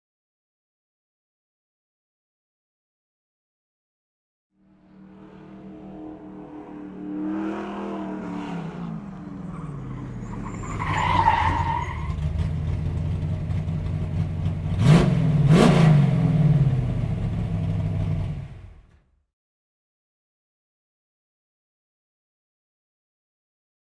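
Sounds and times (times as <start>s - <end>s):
car engine revving: 4.6s - 19.0s
short high screech: 9.5s - 12.2s.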